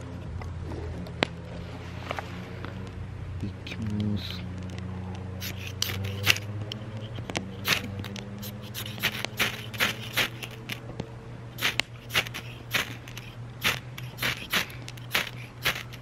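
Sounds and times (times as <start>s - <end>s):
steady low hum: 0.0s - 16.0s
ferro rod scraping: 5.4s - 10.8s, 11.6s - 16.0s.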